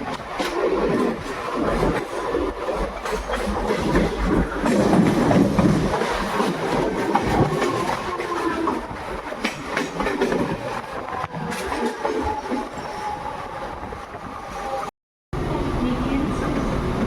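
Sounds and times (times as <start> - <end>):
wheels clattering over rail joints: 0.0 - 13.2
train rumbling on rails: 0.0 - 17.0.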